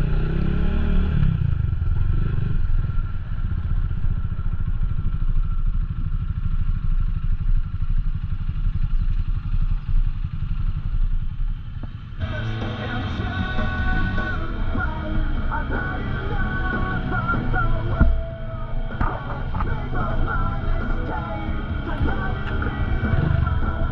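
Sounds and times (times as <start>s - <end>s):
motorcycle engine running: 0.0s - 23.9s
music: 12.2s - 23.9s.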